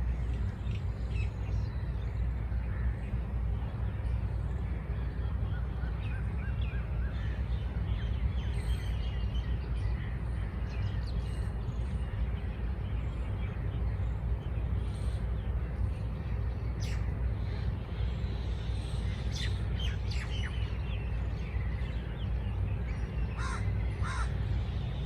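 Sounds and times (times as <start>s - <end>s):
birds chirping and calling: 5.3s - 25.0s.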